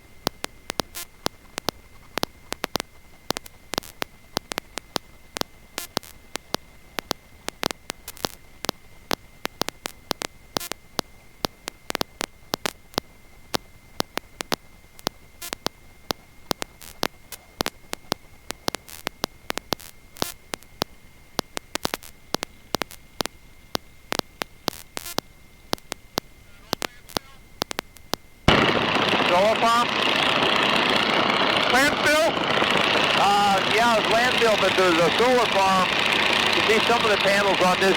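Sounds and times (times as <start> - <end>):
low hiss: 0.0 - 37.9
static crackle: 0.0 - 37.9
high-pitched whine: 26.4 - 37.9.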